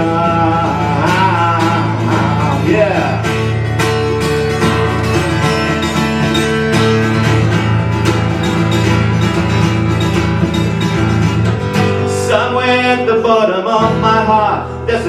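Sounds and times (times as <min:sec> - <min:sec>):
guitar strumming chords: 0:00.0 - 0:15.0.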